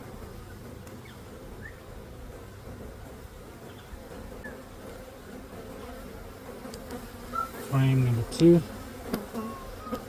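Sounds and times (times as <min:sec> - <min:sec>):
bee colony humming: 0:00.0 - 0:10.0
single bee buzzing past: 0:04.0 - 0:10.0.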